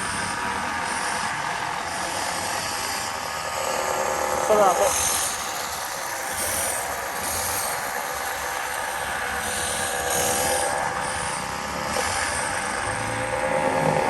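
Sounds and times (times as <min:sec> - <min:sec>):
small motorbike engine running: 0:00.0 - 0:14.0
steady rushing noise: 0:00.0 - 0:14.0.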